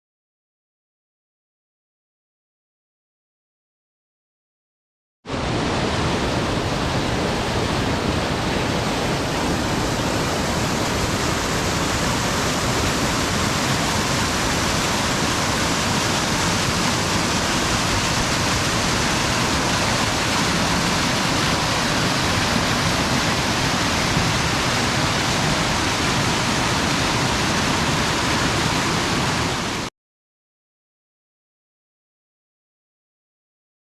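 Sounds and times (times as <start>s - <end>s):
waterfall pouring: 5.8s - 29.9s.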